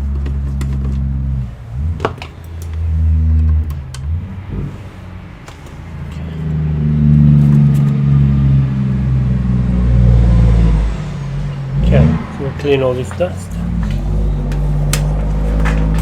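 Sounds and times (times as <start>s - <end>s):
motor droning: 0.0s - 16.0s.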